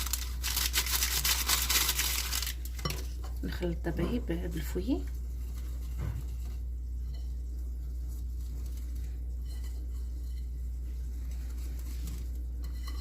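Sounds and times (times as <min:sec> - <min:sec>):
steady low hum: 0:00.0 - 0:13.0
whisk stirring batter: 0:04.0 - 0:13.0.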